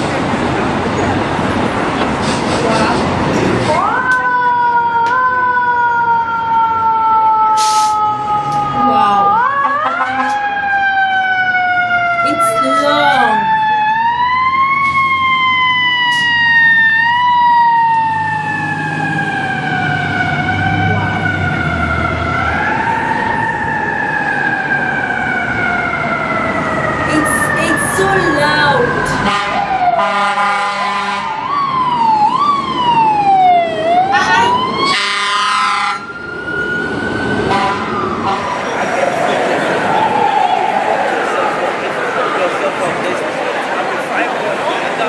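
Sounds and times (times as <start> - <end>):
fire truck siren wailing: 0.0 - 45.0
low rumble of truck and traffic: 0.0 - 45.0
air horn blast: 27.1 - 28.3, 29.3 - 31.3, 35.0 - 36.0, 37.5 - 38.4.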